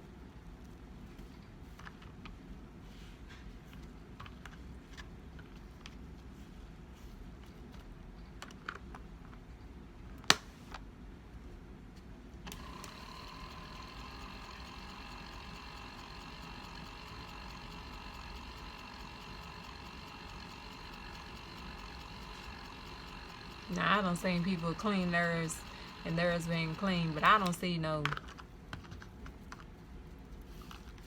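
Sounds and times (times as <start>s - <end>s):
small electric motor whining: 12.5s - 27.8s.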